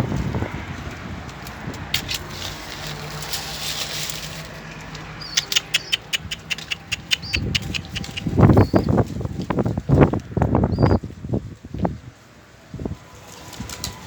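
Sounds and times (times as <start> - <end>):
sharp clicks and taps: 4.8 - 8.8
pigeon high chirps: 5.2 - 9.0, 10.7 - 11.0.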